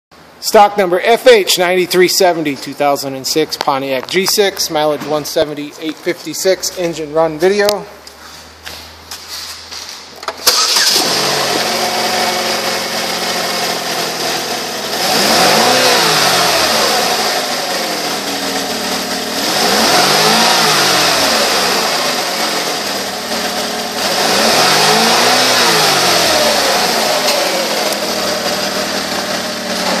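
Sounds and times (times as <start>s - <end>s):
car engine starting and idling: 9.7s - 30.0s
car engine revving: 10.4s - 30.0s.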